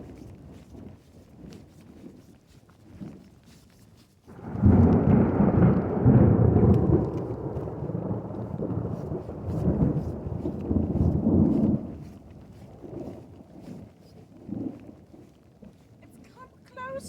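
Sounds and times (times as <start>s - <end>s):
deep thunder rumble: 4.3s - 13.0s.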